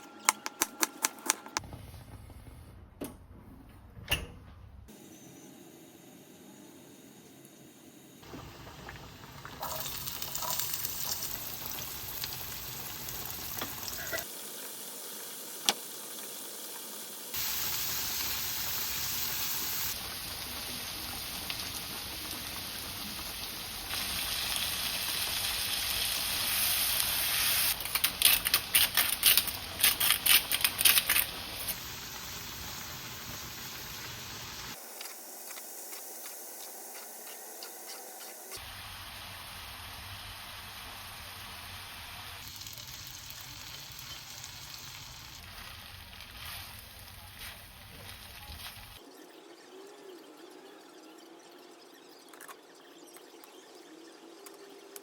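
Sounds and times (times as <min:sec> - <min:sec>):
food sizzling in a frying pan: 0:08.2 - 0:49.0.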